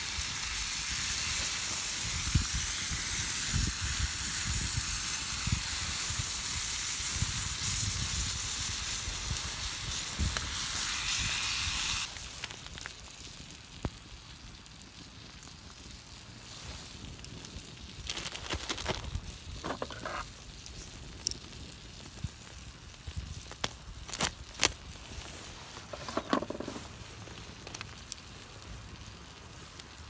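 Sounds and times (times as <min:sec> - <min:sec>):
food sizzling in a pan: 0:00.0 - 0:13.2.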